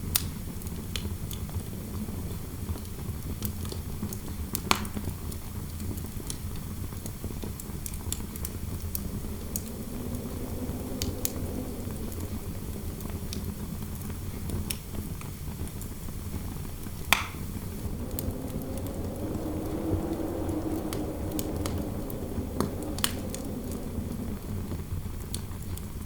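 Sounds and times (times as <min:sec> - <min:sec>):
low wind rumble: 0:05.5 - 0:26.0
fireplace crackling: 0:07.8 - 0:15.0, 0:16.7 - 0:25.8.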